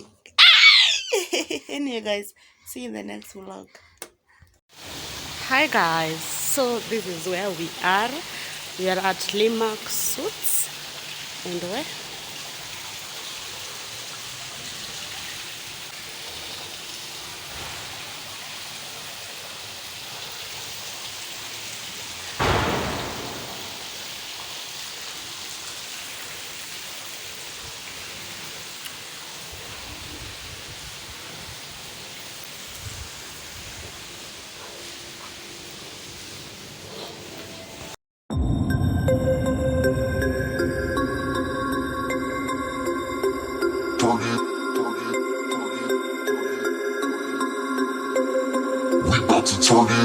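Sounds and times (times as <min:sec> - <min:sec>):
sudden loud burst: 0:22.4 - 0:24.3.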